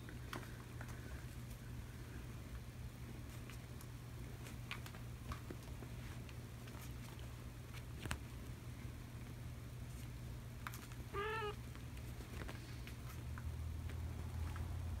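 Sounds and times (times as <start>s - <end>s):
kitten meowing: 11.1s - 11.6s.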